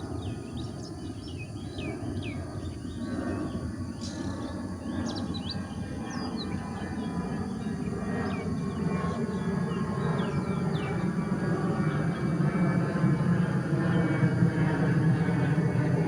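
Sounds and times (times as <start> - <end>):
birds chirping: 0.0 - 11.2.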